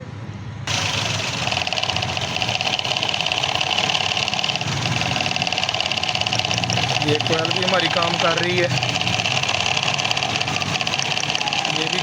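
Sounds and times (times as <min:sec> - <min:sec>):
misfiring car engine idling: 0:00.7 - 0:12.0.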